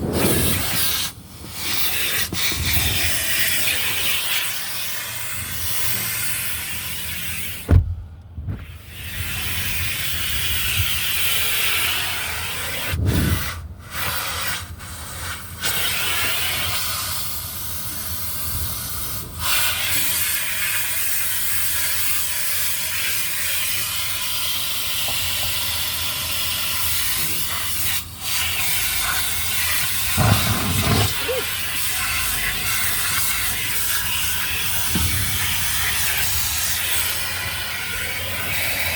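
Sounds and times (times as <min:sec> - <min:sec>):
car wash jets hissing: 0:00.0 - 0:38.9
low thuds: 0:07.7 - 0:08.7, 0:30.1 - 0:31.4.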